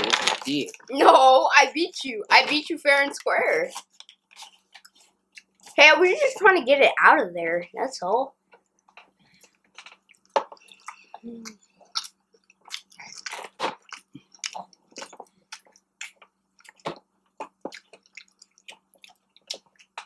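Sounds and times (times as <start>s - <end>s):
chewing with wet smacks: 3.7s - 5.8s, 8.6s - 20.0s.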